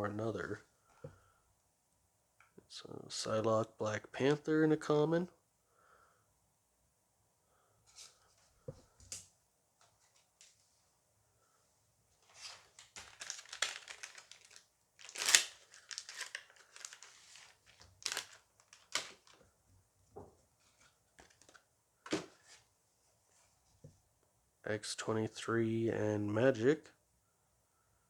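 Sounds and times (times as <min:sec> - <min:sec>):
foil wrapper tearing and crinkling: 0:12.3 - 0:19.4.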